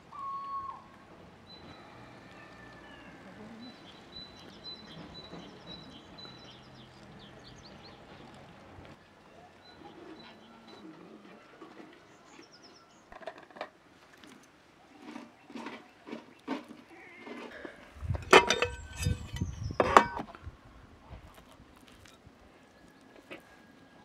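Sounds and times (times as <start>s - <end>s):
faint outdoor background: 0.0s - 24.0s
small birds chirping: 0.1s - 11.2s, 14.2s - 20.1s.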